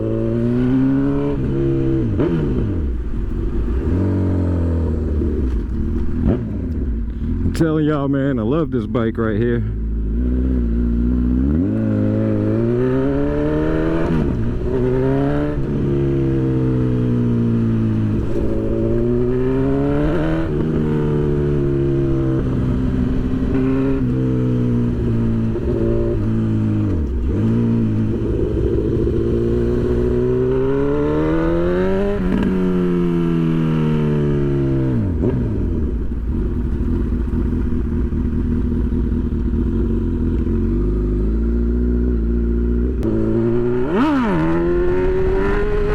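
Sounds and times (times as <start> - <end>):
motorcycle engine shifting gears: 0.0 - 7.8, 9.8 - 45.9
wind rumble: 9.8 - 42.3, 42.9 - 45.9.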